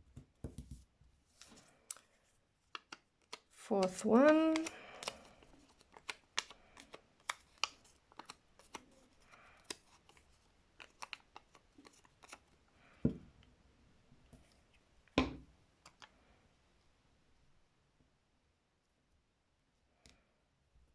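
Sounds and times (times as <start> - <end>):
paper clicks taps and rustles: 2.6 - 9.0, 9.6 - 12.4.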